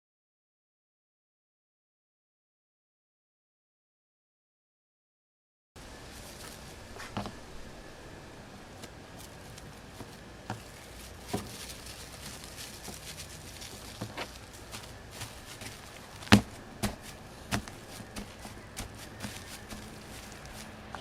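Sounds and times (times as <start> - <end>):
faint background hiss: 5.8 - 21.0.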